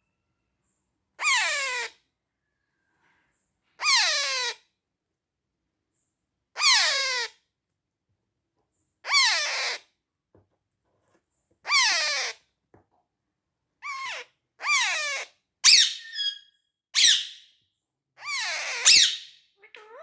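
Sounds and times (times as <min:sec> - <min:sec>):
parrot chick calling: 0:03.8 - 0:04.6, 0:06.6 - 0:07.3, 0:09.1 - 0:09.8, 0:11.7 - 0:12.4, 0:13.8 - 0:17.5, 0:18.2 - 0:20.0.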